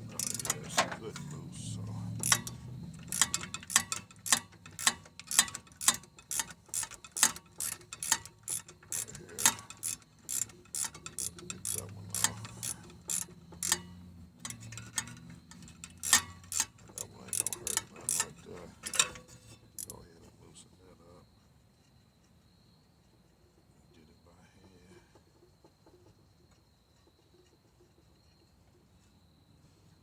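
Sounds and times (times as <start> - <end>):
ratchet wrench clicking: 0.0 - 20.0.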